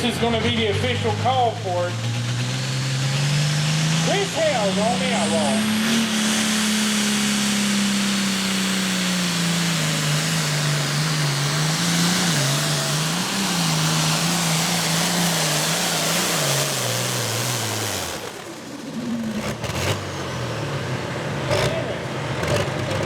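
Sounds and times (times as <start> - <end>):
tractor engine roaring under load: 0.0 - 23.0.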